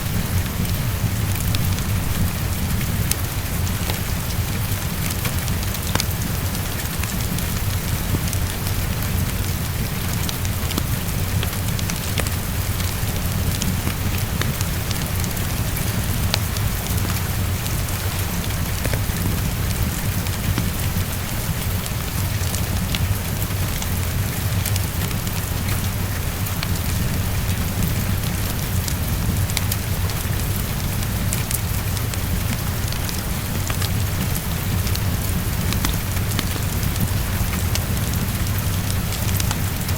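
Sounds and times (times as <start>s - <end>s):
heavy rain against a window: 0.0s - 39.9s
wood fire crackling: 0.0s - 39.9s.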